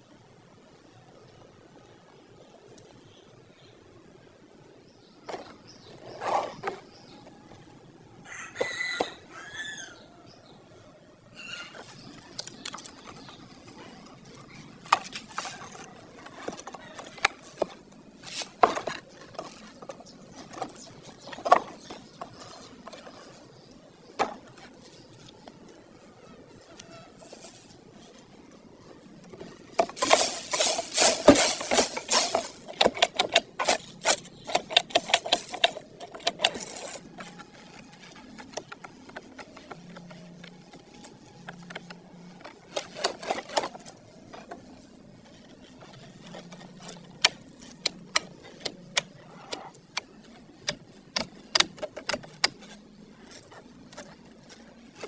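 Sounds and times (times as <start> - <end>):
clicks and knocks of small parts: 29.3 - 44.6, 45.3 - 55.0
rapid clicking and rattling: 29.3 - 44.6.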